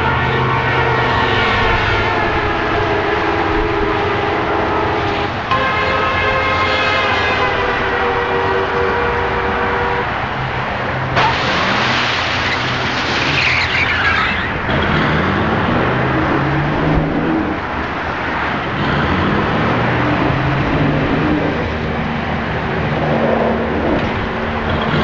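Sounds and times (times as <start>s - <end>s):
horn chord: 0.0s - 10.1s
high screech: 11.2s - 14.6s.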